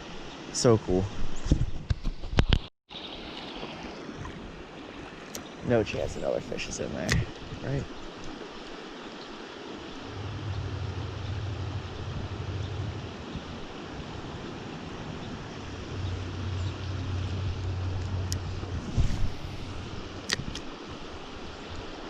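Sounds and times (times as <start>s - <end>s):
creek water running: 2.9s - 22.0s
low rumble: 10.0s - 20.2s.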